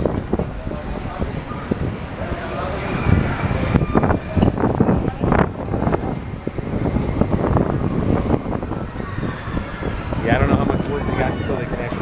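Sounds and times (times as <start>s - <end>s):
people talking: 0.0s - 6.5s, 10.2s - 12.0s
wind buffeting microphone: 0.0s - 12.0s.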